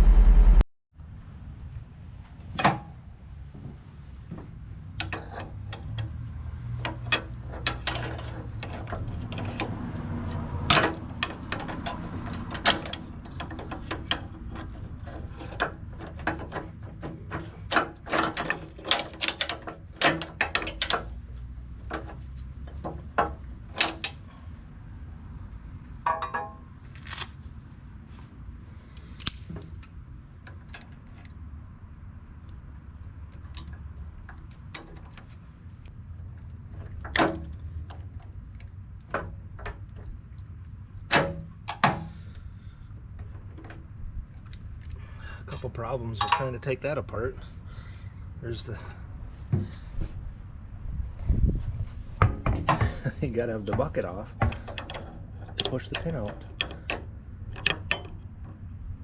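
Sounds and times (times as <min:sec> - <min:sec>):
steady low rumble: 0:00.0 - 0:02.4
metal clanks from prying: 0:26.0 - 0:26.6, 0:52.2 - 0:58.2.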